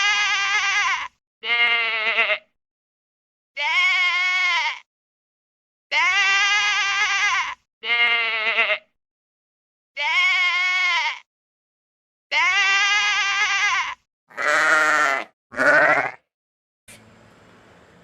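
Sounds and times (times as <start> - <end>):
quavering bleats: 0.0 - 2.5, 3.6 - 4.9, 5.9 - 8.9, 10.0 - 11.3, 12.3 - 16.3.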